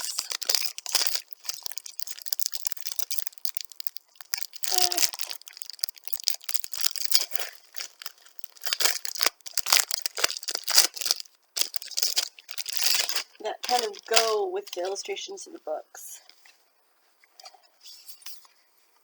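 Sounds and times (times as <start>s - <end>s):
packaging crinkling and tearing: 0.0s - 15.1s
person humming: 4.7s - 5.2s.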